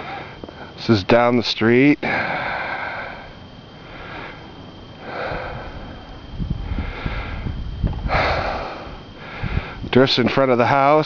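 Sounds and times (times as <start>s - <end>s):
heavy breathing: 0.0s - 0.8s, 2.0s - 9.9s
low thumps: 6.2s - 10.4s.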